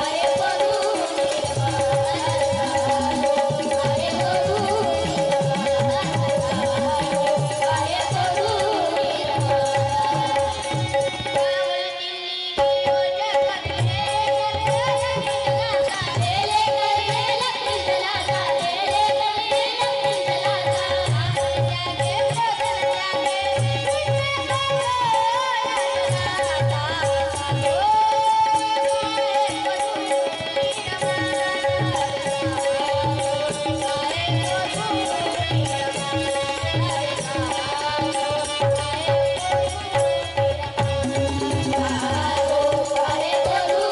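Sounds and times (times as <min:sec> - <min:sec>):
harmonium holding notes: 0:00.0 - 0:43.9
man singing devotional song: 0:00.0 - 0:43.9
tabla beat: 0:00.0 - 0:43.9
hand drum beat: 0:01.0 - 0:11.2, 0:33.0 - 0:43.9.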